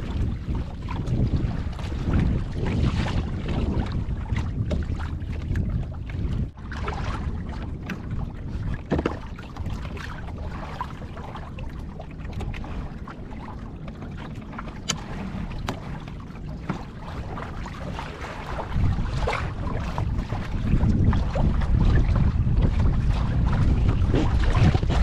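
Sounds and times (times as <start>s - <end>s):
water sloshing against hull: 0.0s - 25.0s
wind buffeting microphone: 0.0s - 25.0s
boat fittings knocking: 8.8s - 9.7s, 13.8s - 17.0s.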